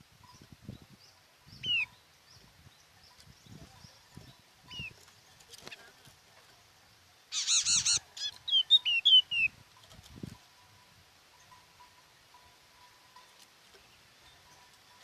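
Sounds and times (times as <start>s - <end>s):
bird calling: 1.5s - 2.4s, 7.3s - 9.6s.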